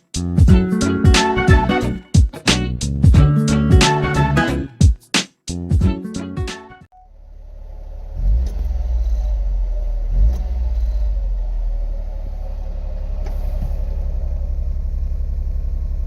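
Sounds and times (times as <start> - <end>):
car engine revving and idling: 7.1 - 16.0.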